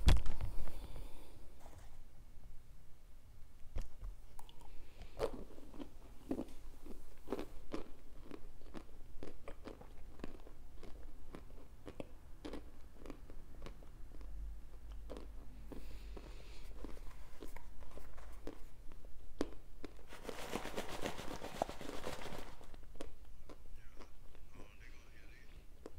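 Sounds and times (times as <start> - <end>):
crunchy food being chewed: 3.8 - 20.5, 22.6 - 24.7.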